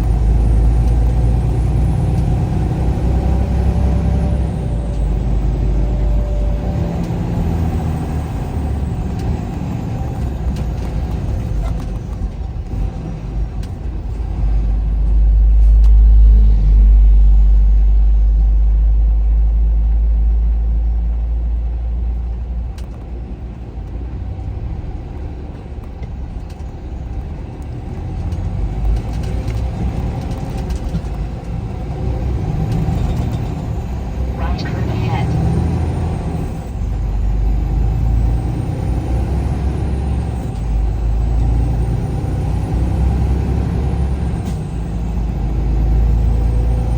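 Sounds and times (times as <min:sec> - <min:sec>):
vehicle engine and road rumble: 0:00.0 - 0:46.9
low drone: 0:14.6 - 0:22.0.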